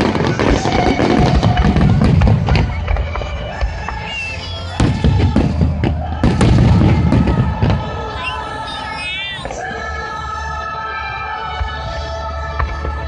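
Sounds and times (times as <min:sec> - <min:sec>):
fireworks bursting: 0:00.0 - 0:09.9
music playing: 0:00.0 - 0:13.0.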